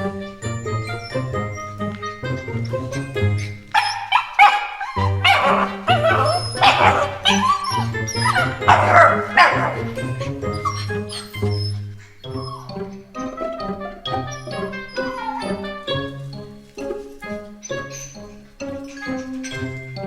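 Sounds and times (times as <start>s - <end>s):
background music: 0.0s - 20.0s
small dog barking: 3.7s - 10.0s, 14.4s - 15.6s.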